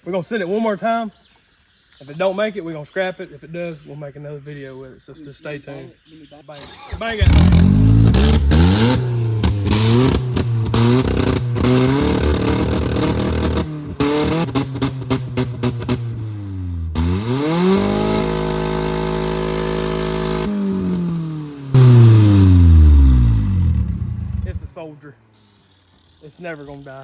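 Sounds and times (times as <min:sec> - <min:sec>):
car engine revving: 0:06.7 - 0:24.6.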